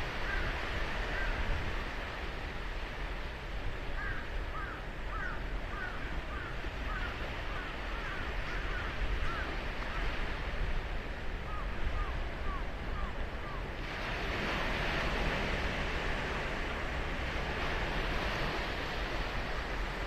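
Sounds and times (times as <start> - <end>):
ocean surf breaking: 6.9 - 20.0.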